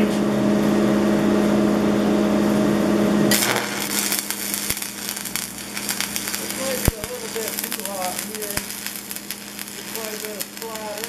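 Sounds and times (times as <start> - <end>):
electrical hum: 0.0 - 11.0
welding arc crackling and sizzling: 3.3 - 11.0.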